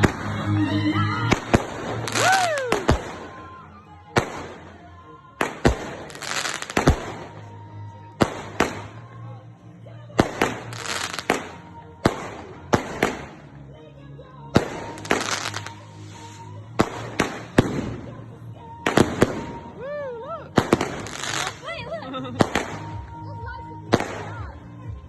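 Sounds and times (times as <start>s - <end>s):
firework crackling: 0.0s - 7.6s, 8.2s - 9.1s, 10.2s - 13.6s, 14.5s - 19.8s, 20.5s - 21.8s, 22.4s - 23.1s
firework bangs: 1.2s - 3.5s, 4.1s - 7.5s, 8.2s - 9.0s, 10.2s - 13.4s, 14.6s - 18.2s, 18.8s - 19.7s, 20.6s - 21.7s, 22.4s - 23.0s
firework whistle: 2.0s - 3.0s.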